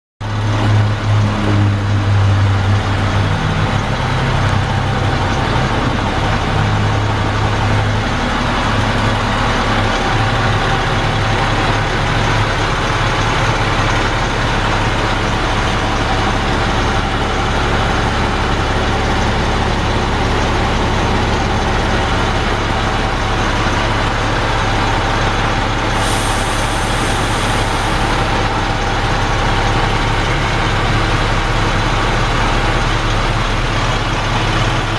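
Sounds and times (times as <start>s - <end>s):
diesel truck engine idling: 0.2s - 34.9s
high hiss: 26.0s - 28.4s.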